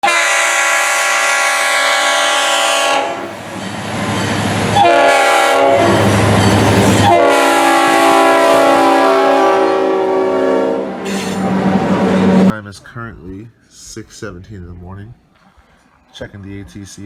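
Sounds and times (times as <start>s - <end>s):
locomotive air horn: 0.0s - 3.6s, 4.6s - 12.5s
low rumble of train: 0.0s - 12.5s.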